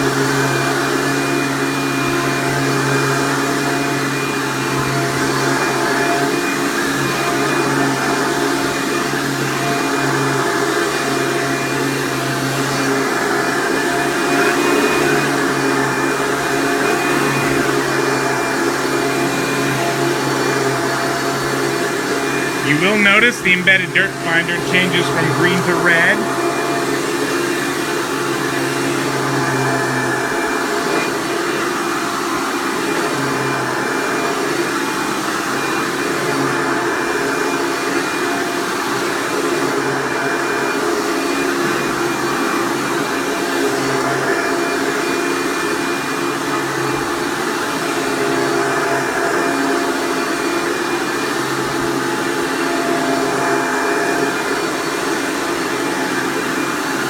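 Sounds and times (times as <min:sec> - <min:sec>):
vacuum cleaner running on carpet: 0:00.0 - 0:22.5, 0:39.4 - 0:57.0.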